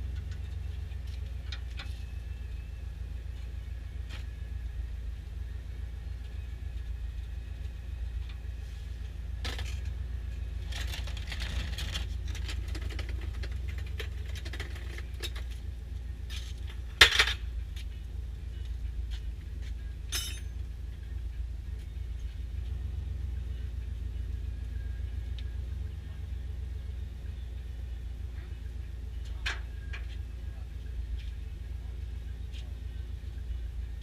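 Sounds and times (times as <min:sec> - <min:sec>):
steady low rumble: 0:00.0 - 0:34.0
sharp metal clank: 0:20.1 - 0:20.6
metal clinking and rattling: 0:20.1 - 0:20.7.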